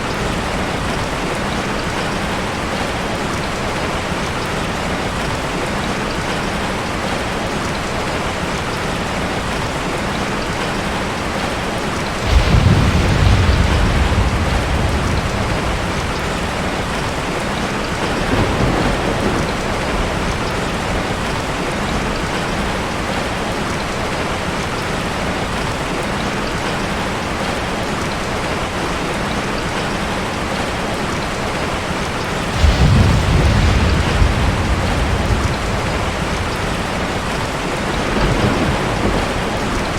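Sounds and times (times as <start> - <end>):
steady rain: 0.0 - 39.9
thunder rumbling: 12.2 - 22.8, 32.4 - 39.9.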